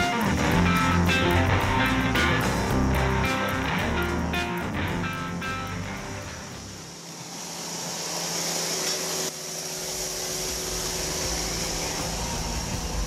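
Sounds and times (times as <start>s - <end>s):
diesel tractor running: 0.0s - 13.0s
hissing fan-like whir: 3.2s - 13.0s.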